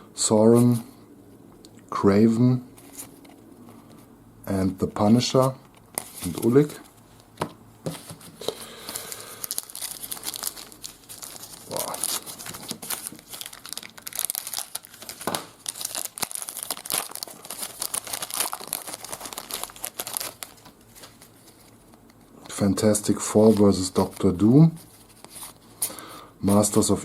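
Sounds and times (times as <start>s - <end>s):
wrapper tearing and crinkling: 8.9s - 22.2s.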